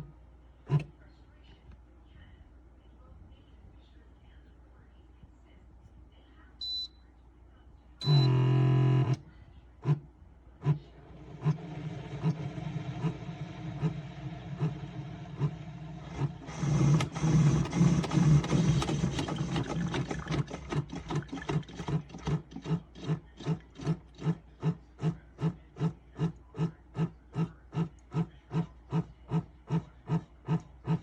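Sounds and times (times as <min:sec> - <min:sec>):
coffee maker pump humming: 0:08.0 - 0:09.2, 0:10.6 - 0:31.0.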